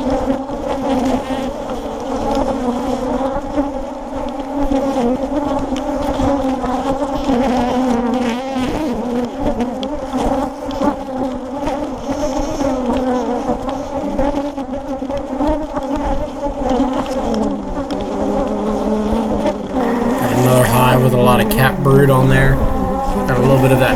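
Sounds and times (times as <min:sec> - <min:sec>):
honey bees buzzing: 0:19.8 - 0:23.9.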